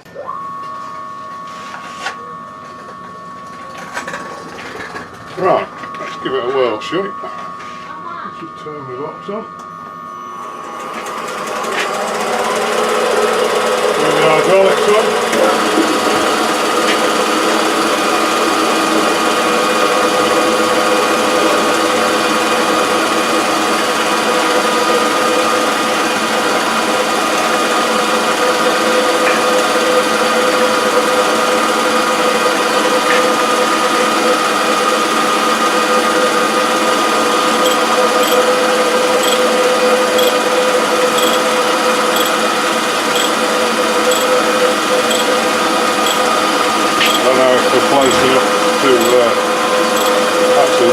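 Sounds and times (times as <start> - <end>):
faint regular ticking: 37.7 - 38.4, 41.2 - 41.4
grinder mechanical whine: 37.7 - 39.6, 43.1 - 43.4, 44.1 - 44.3.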